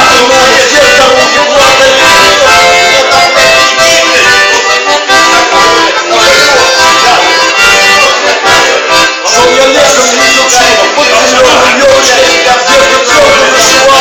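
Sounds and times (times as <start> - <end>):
accordion playing a tune: 0.0 - 14.0.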